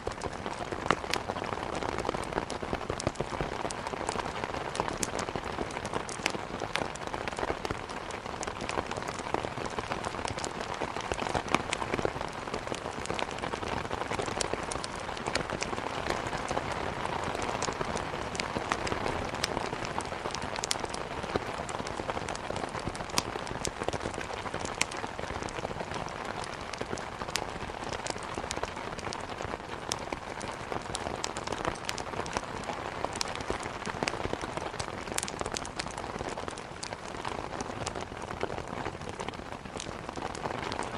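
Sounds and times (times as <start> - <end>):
heavy rain on a window: 0.0 - 40.9
wood crackling in a fireplace: 0.0 - 40.9.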